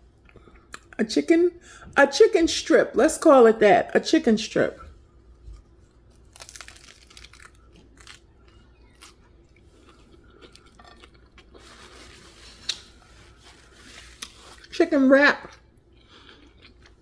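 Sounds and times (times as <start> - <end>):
person chewing crunchy food: 5.4 - 14.7, 15.9 - 17.0.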